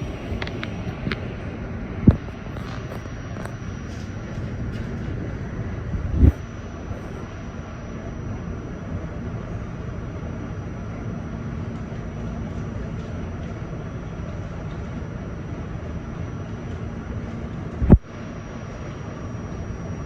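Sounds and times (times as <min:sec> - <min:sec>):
subway car rumbling on track: 0:00.0 - 0:02.2.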